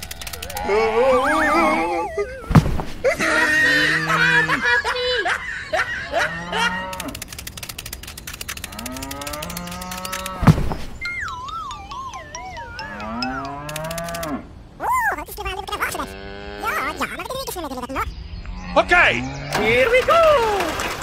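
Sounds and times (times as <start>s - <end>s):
squeaky cartoon voice laughing: 0.4s - 6.9s, 14.8s - 18.1s
sharp cartoon thud: 2.5s - 3.0s, 10.4s - 11.0s
cattle mooing: 12.8s - 14.4s, 15.9s - 17.2s.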